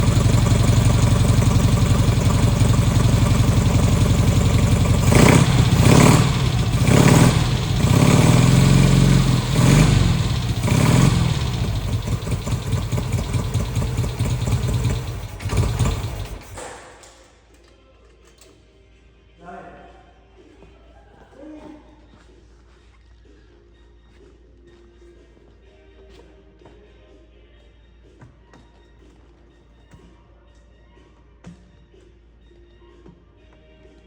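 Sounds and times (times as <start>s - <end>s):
motorcycle engine idling and revving: 0.0s - 16.9s.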